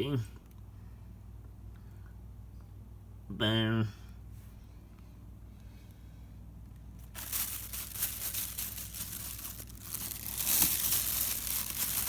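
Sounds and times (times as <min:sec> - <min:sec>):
plastic or paper crinkling: 0:07.0 - 0:12.0.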